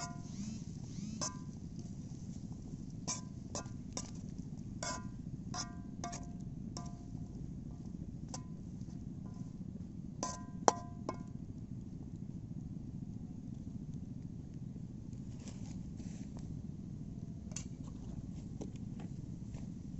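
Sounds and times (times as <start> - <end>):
steady low rumble: 0.3 - 19.9.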